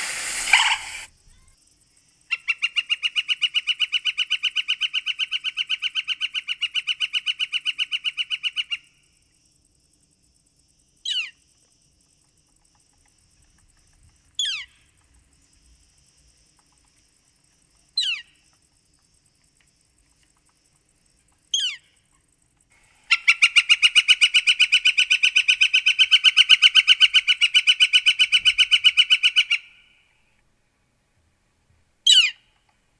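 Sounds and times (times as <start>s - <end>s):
bird rapid wick calls: 0.0s - 1.1s
bird sharp descending calls: 0.0s - 1.1s.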